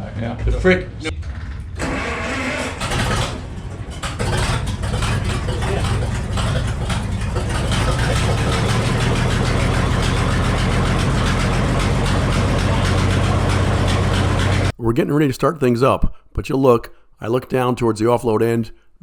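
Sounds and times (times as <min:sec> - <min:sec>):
engine idling: 0:01.1 - 0:14.7.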